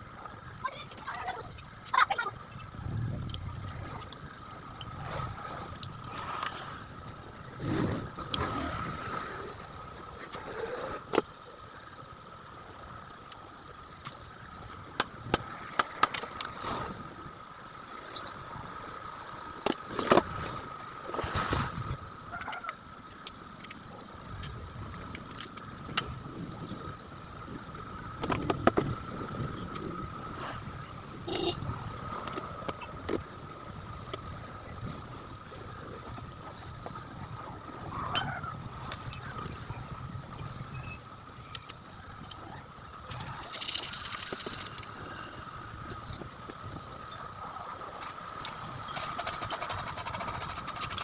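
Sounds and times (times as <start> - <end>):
clicks and knocks of fan parts: 14.0 - 16.6, 28.2 - 29.0, 43.1 - 45.0, 48.0 - 51.0.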